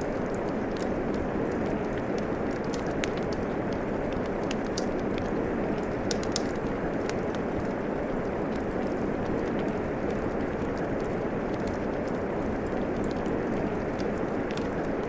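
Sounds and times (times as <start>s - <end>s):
rain falling: 0.0s - 15.0s
wood fire crackling and popping: 0.0s - 15.0s.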